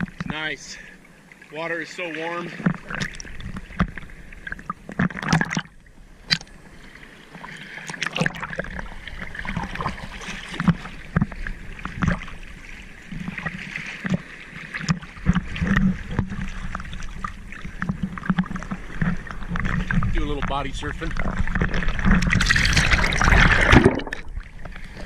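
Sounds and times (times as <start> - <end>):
sea water splashing: 0.0 - 25.0.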